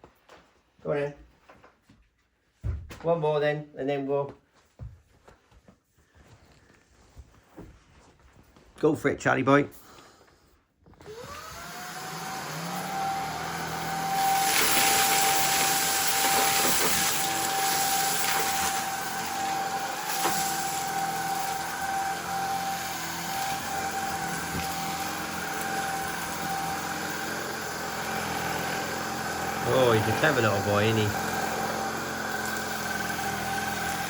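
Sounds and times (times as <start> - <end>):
vacuum motor whining: 10.9 - 34.0.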